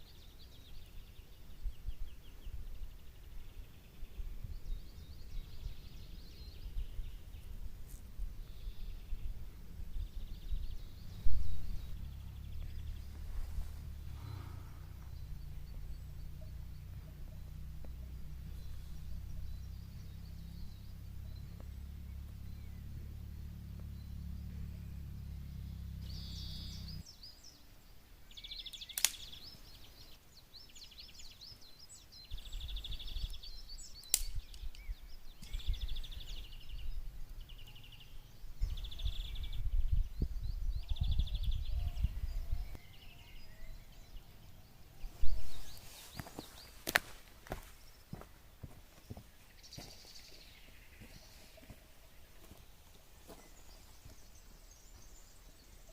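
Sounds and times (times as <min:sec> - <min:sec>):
wind rumbling on microphone: 0:00.6 - 0:27.1, 0:32.1 - 0:46.8.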